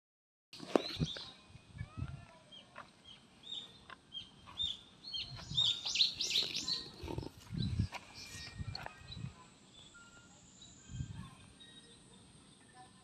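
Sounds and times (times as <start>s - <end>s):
small birds chirping: 0.6s - 13.0s.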